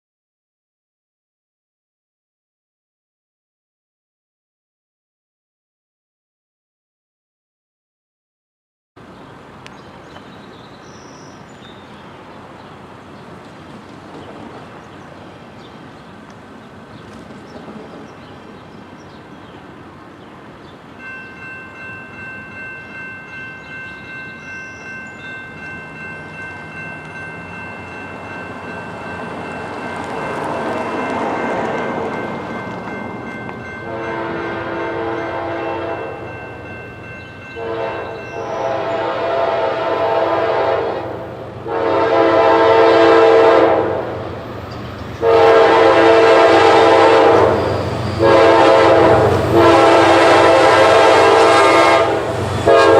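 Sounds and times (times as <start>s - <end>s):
train rumble: 9.0s - 52.9s
crossing bell ringing: 20.6s - 39.4s
locomotive air horn blasts: 33.8s - 36.3s, 37.5s - 44.2s, 45.2s - 52.9s.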